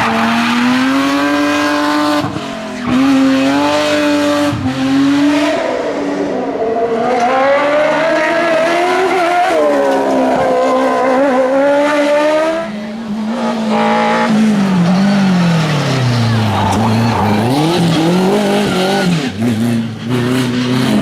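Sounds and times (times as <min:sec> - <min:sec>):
race car engine revving: 0:00.0 - 0:21.0.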